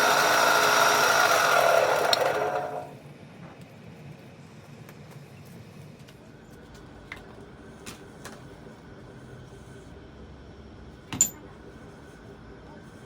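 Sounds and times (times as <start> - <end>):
workshop background noise: 0.0 - 10.1.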